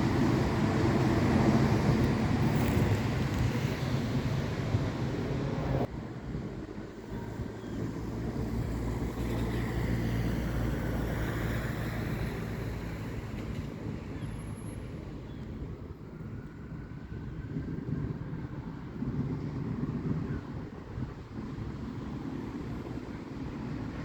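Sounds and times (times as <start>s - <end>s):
vehicles passing: 0.0s - 16.2s
wind noise on microphone: 0.0s - 24.0s.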